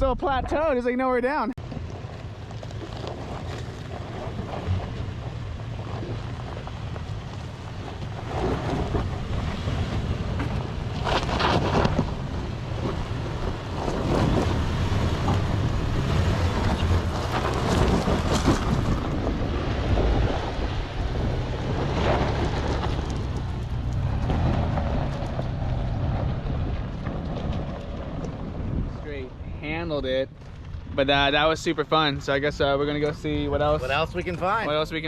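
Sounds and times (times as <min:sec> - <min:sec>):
truck engine under load: 0:01.6 - 0:28.8
wind buffeting microphone: 0:01.6 - 0:35.0.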